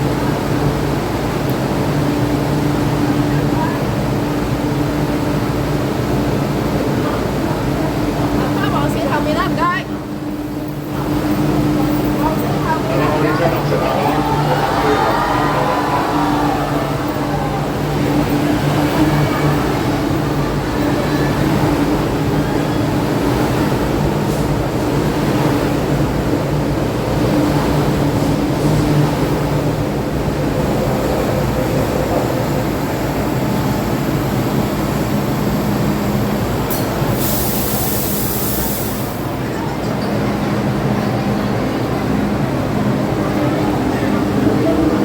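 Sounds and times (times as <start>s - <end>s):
electric train hum and rumble: 0.0s - 45.0s
air hiss: 36.7s - 39.3s.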